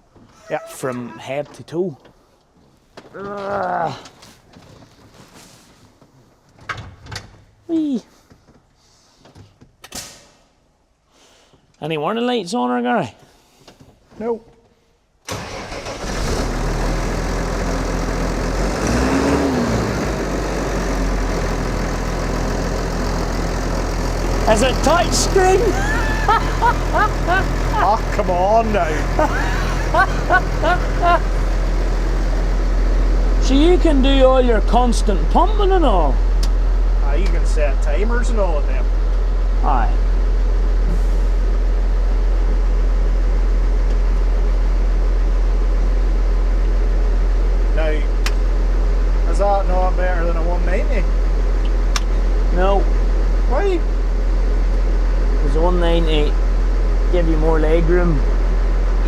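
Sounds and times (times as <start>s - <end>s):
tractor diesel engine idling: 15.3s - 59.0s.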